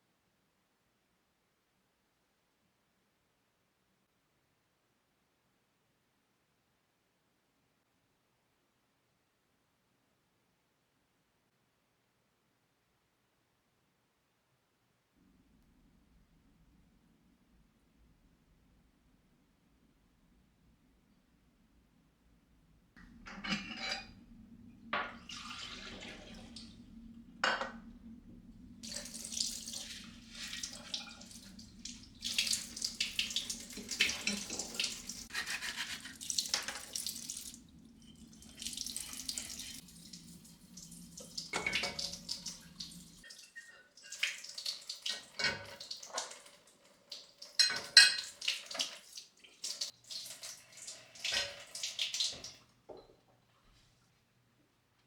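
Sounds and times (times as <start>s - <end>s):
low steady hum: 15.3s - 35.3s, 36.2s - 43.3s
tap water running: 23.0s - 53.0s.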